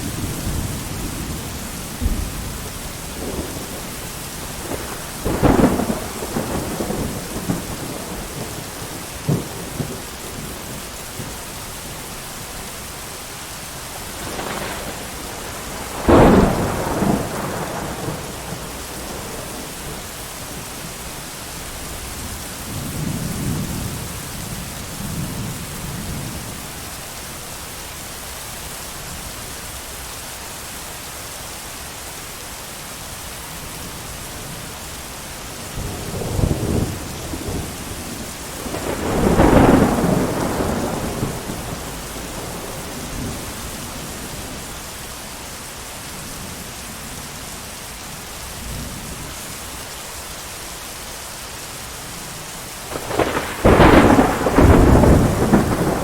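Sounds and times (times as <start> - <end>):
thunder: 0.0 - 11.4, 14.1 - 20.0, 35.8 - 44.6, 52.9 - 56.0
heavy rain: 0.0 - 56.0.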